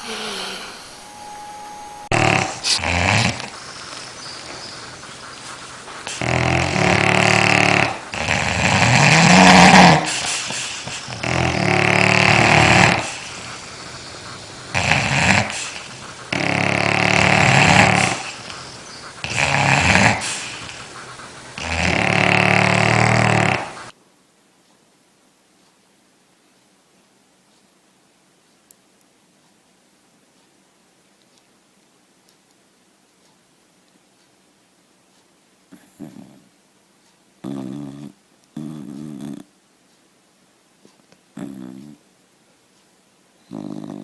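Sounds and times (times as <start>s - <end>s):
dog snoring: 0.0s - 24.0s, 35.7s - 36.5s, 37.4s - 39.5s, 41.3s - 42.0s, 43.4s - 44.0s.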